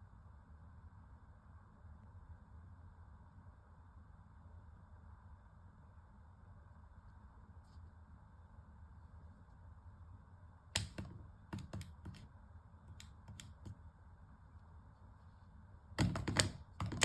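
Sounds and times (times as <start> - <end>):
cat paw tapping hair dryer: 10.8 - 12.2, 16.0 - 17.0.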